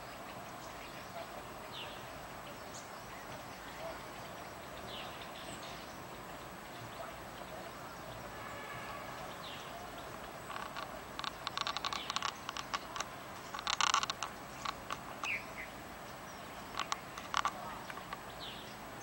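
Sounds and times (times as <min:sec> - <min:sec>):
bird chirps: 0:00.0 - 0:19.0
steady hiss: 0:00.0 - 0:19.0
sharp clicking bird notes: 0:09.3 - 0:18.7.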